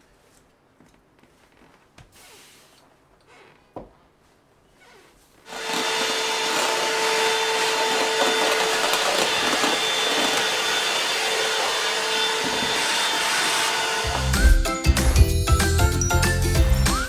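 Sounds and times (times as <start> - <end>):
vacuum cleaner running: 5.5 - 15.4.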